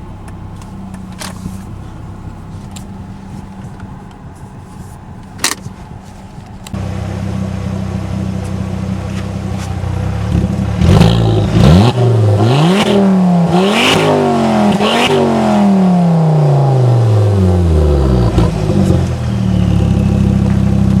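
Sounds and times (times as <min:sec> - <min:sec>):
car engine revving: 0:06.7 - 0:21.0
exhaust cracks: 0:08.2 - 0:21.0.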